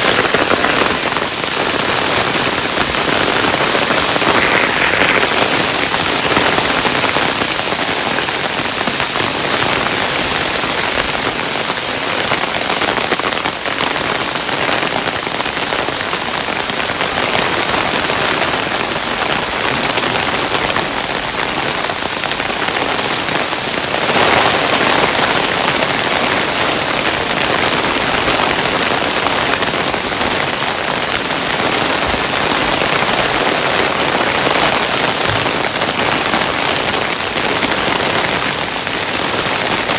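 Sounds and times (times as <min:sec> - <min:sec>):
hailstones falling: 0:00.0 - 0:21.6.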